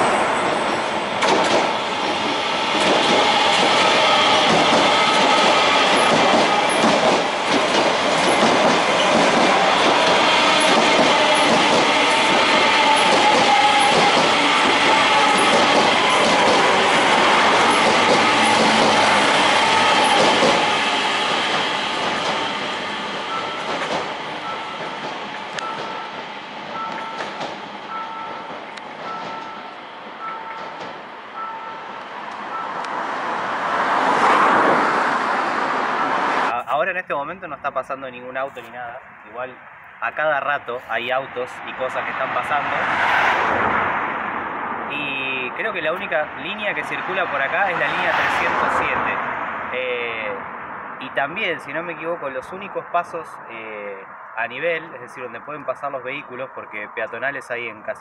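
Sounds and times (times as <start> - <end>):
train wheels clacking on rails: 1.2 - 31.8
two-tone crossing warning beep: 23.3 - 23.8.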